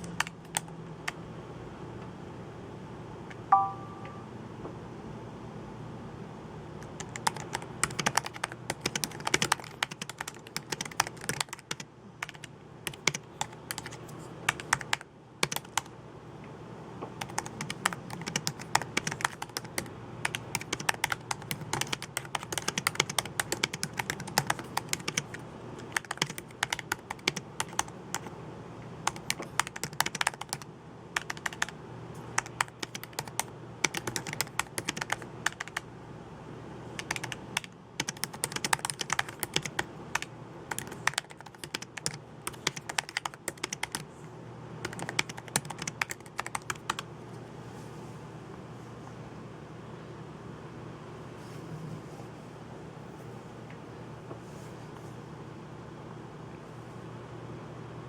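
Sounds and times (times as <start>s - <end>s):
keyboard typing: 0.0s - 0.7s, 3.3s - 4.2s, 6.8s - 15.9s, 17.2s - 28.3s, 29.0s - 35.8s, 37.0s - 44.1s, 44.8s - 47.1s.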